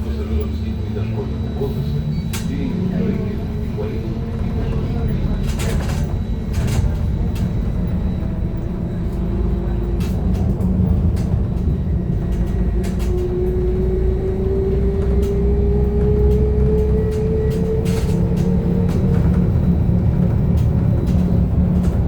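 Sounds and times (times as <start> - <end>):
low rumble: 0.0 - 22.0
rattles and clicks: 4.4 - 14.3, 14.9 - 22.0.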